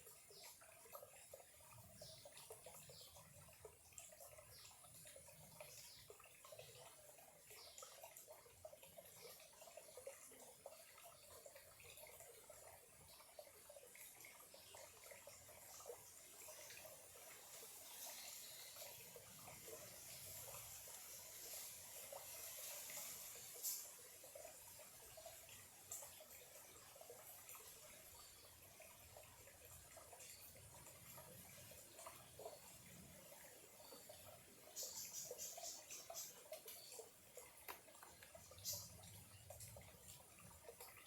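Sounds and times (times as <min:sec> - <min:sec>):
stream trickling and bubbling: 0:00.0 - 0:41.0.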